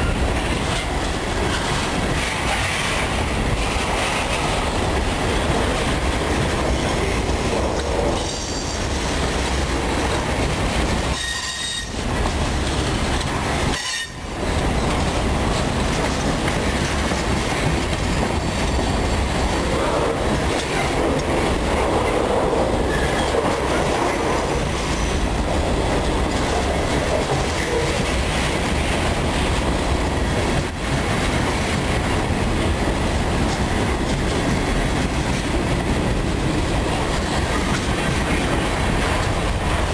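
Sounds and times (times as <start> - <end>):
train wheels clattering: 0.0 - 39.9
high wheel squeals: 11.1 - 12.0.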